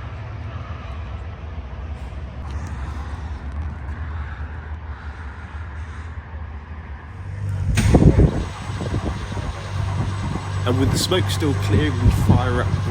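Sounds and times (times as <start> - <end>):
car engine idling: 7.1 - 12.9.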